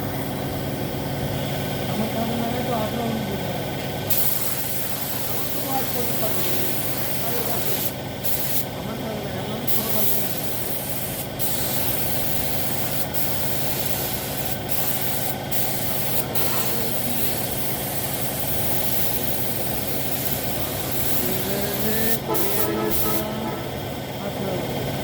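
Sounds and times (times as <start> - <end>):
paint spray gun hissing: 4.1 - 8.8, 9.6 - 23.8
machine hum: 10.3 - 25.0.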